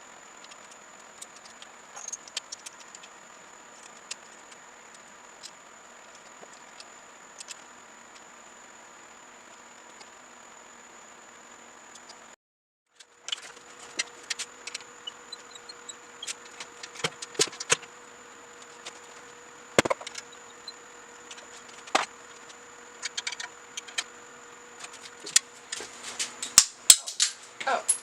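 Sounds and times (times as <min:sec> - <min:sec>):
faint hum: 0:00.0 - 0:12.4, 0:13.0 - 0:28.0
tools and parts clicking: 0:01.2 - 0:03.1, 0:26.4 - 0:28.0.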